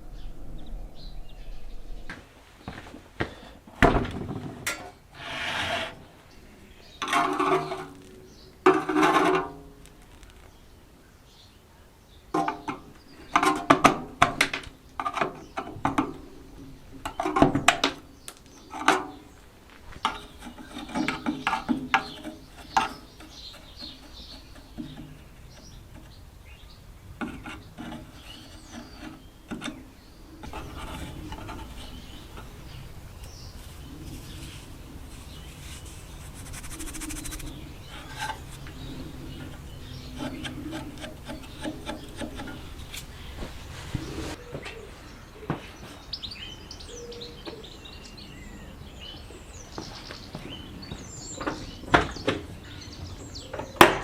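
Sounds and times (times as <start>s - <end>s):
low steady hum: 0.0s - 3.0s
tools knocking and clattering: 3.8s - 5.0s, 7.0s - 9.7s, 12.4s - 16.2s, 17.0s - 18.0s, 20.0s - 26.2s, 39.4s - 43.0s
parts scraping and rubbing: 4.2s - 6.3s, 6.9s - 10.6s, 12.4s - 44.4s.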